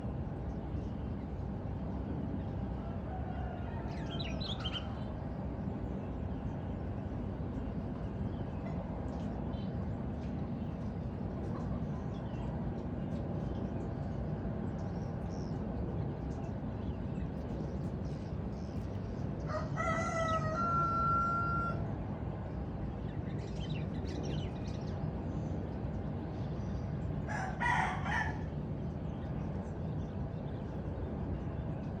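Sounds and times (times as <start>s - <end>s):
low background rumble: 0.0s - 32.0s
rooster crowing: 2.8s - 4.4s, 19.5s - 21.9s, 27.3s - 28.5s.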